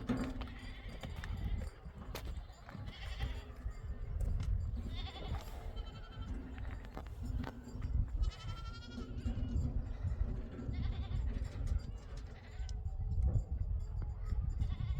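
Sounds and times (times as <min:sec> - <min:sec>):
animals bleating: 0:00.1 - 0:03.9, 0:04.7 - 0:07.1, 0:08.2 - 0:12.8.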